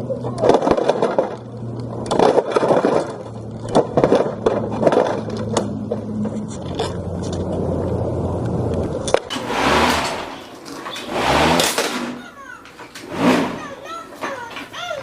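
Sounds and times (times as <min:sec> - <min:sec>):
lawnmower engine running: 0:00.0 - 0:15.0
sharp cracks and knocks: 0:00.4 - 0:07.5, 0:09.0 - 0:13.6
plastic toy scraped and crunched: 0:09.3 - 0:15.0.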